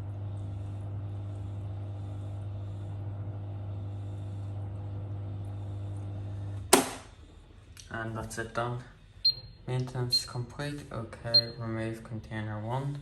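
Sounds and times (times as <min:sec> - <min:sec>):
washing machine humming: 0:00.0 - 0:13.0.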